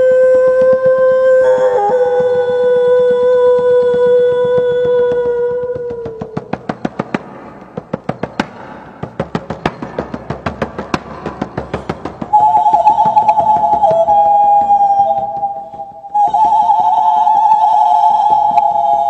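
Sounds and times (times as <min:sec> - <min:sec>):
held pitched tone: 0:12.1 - 0:19.0.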